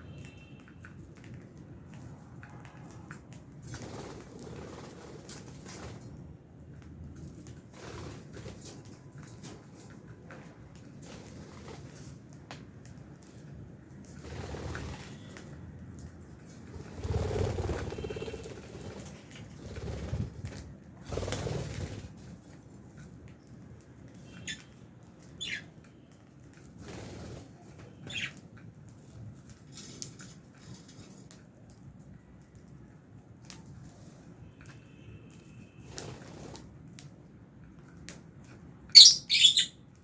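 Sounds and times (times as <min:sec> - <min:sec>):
lovebirds chirping: 0:38.9 - 0:39.8.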